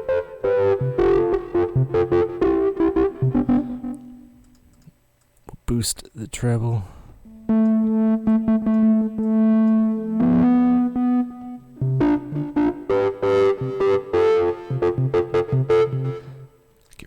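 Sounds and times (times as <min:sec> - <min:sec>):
distorted synth organ notes: 0:00.0 - 0:04.4, 0:07.3 - 0:16.6.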